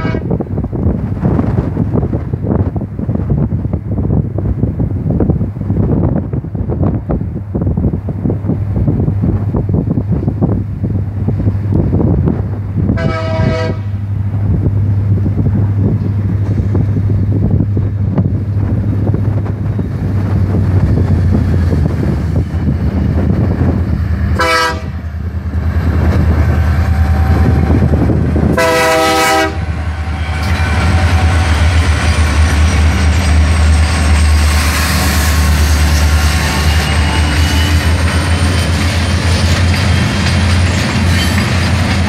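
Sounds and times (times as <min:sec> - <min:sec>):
train air horn: 0:00.0 - 0:00.3, 0:13.0 - 0:14.0, 0:24.4 - 0:25.0, 0:28.5 - 0:31.6
diesel locomotive engines: 0:00.0 - 0:42.0
wheels rolling on rail: 0:00.0 - 0:42.0.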